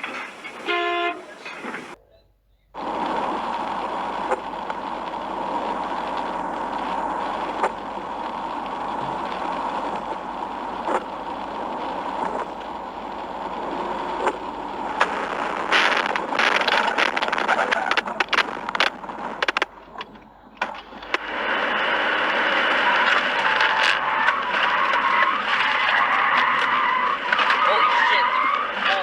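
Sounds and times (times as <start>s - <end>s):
rapid crackling clatter: 0.0s - 2.0s, 2.8s - 29.0s
sharp clicks: 2.8s - 21.7s
moving car rushing noise: 2.8s - 29.0s.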